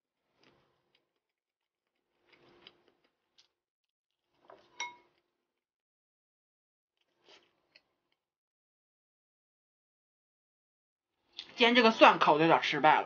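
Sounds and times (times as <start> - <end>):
chewing and mouth smacking: 0.3 - 3.6.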